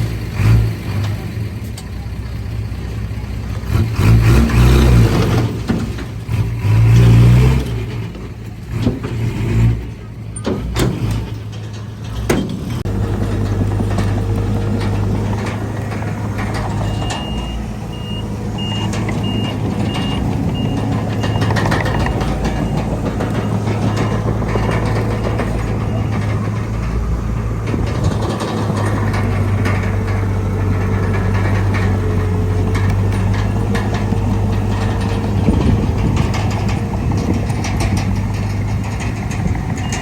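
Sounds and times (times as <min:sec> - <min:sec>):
diesel machinery running: 0:00.0 - 0:40.0
metal clanks: 0:02.9 - 0:40.0
reversing alarm beeping: 0:16.7 - 0:24.9.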